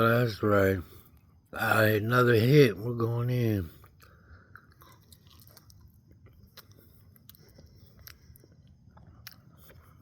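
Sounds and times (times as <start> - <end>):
person chewing food: 3.8 - 10.0.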